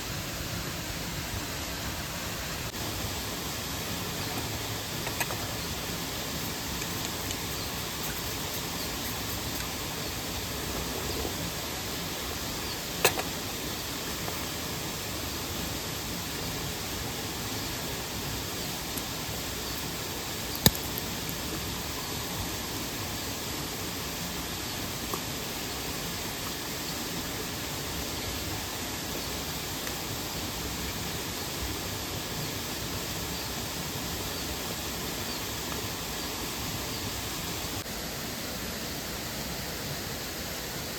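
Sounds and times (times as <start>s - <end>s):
waterfall and stream rushing: 0.0s - 40.9s.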